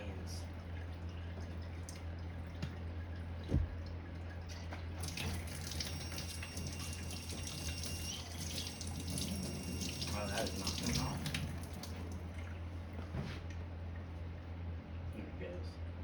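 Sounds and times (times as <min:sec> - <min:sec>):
steady low hum: 0:00.0 - 0:16.0
water running into sink: 0:00.6 - 0:12.5
small knocks and thump: 0:03.4 - 0:03.8
faucet turning on: 0:05.0 - 0:12.2.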